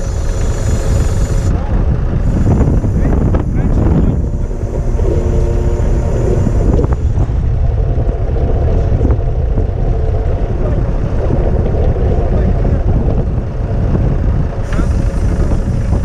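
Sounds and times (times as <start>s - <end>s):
truck engine humming: 0.0s - 16.0s
wind buffeting microphone: 0.0s - 16.0s.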